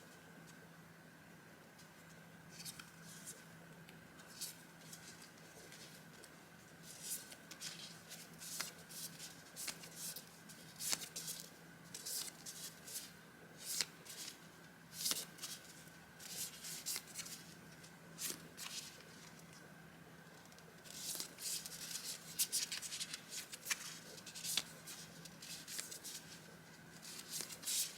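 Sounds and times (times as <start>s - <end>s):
faint steady hum: 0.0s - 27.9s
paper rustling: 4.2s - 19.4s, 20.8s - 27.9s.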